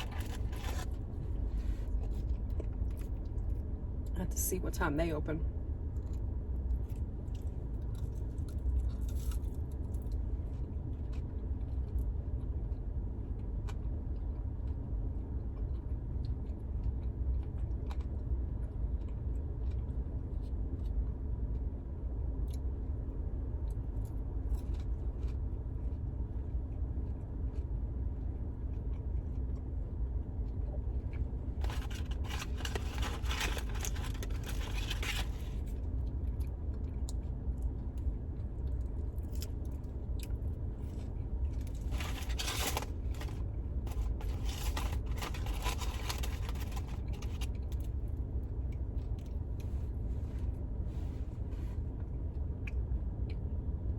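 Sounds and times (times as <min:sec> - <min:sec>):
crinkling rustle: 0:00.0 - 0:02.4, 0:31.6 - 0:35.8, 0:41.5 - 0:47.9.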